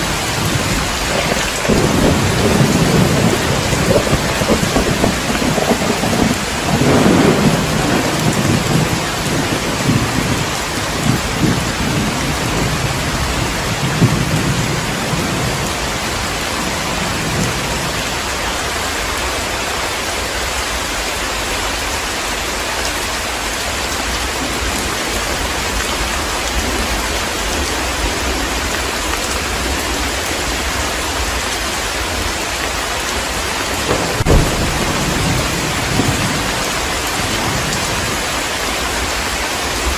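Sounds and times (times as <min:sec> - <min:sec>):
thunder rumbling: 0:00.0 - 0:18.2, 0:33.6 - 0:39.9
heavy rain pouring: 0:00.0 - 0:39.9.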